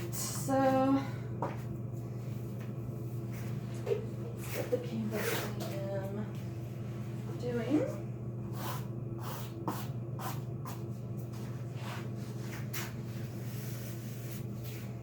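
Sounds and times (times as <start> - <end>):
low room hum: 0.0 - 15.0
objects rustling and scraping: 1.4 - 6.0, 10.8 - 15.0.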